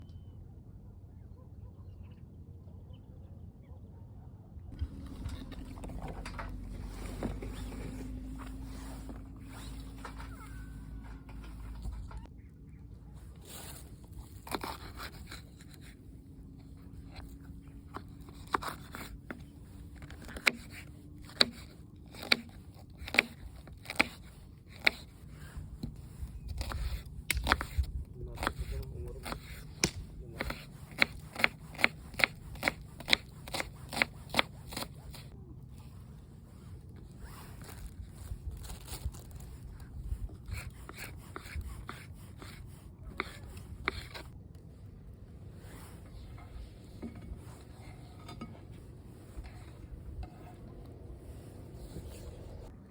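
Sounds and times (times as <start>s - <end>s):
light scraping: 4.8s - 12.3s, 45.5s - 52.7s
knife cutting on cutting board: 20.0s - 25.2s, 25.9s - 35.3s, 40.4s - 44.3s
low wind rumble: 25.3s - 30.4s.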